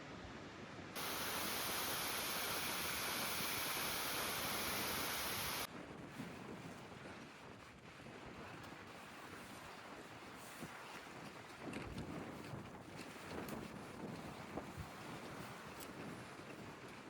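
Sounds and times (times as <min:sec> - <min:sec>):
quiet outdoor hiss: 0:01.0 - 0:05.7
waterfall rushing: 0:01.0 - 0:05.7.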